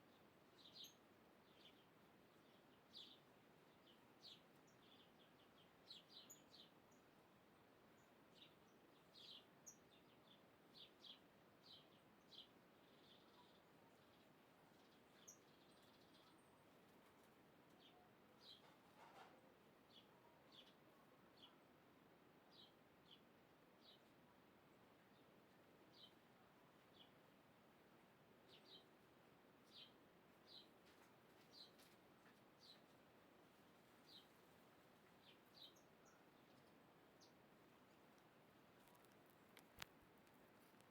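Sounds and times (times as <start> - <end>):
faint bird chirps: 0.0 - 7.1, 7.9 - 16.9, 17.7 - 21.7, 35.2 - 38.1
low background hiss: 0.0 - 40.9.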